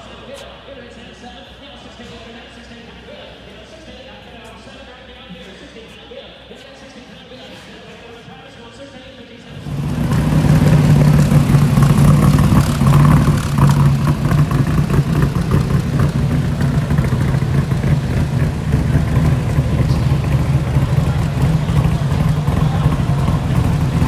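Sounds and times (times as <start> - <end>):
car engine idling loud: 9.5 - 24.0.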